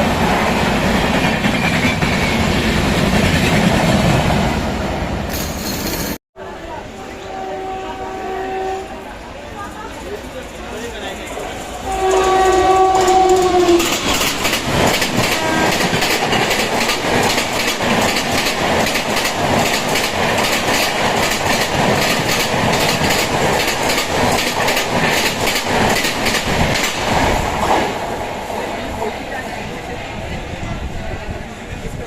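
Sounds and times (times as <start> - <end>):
two-tone train horn: 6.8 - 9.1, 11.8 - 14.0, 15.3 - 15.9
train wheels clattering on rails: 11.2 - 28.7.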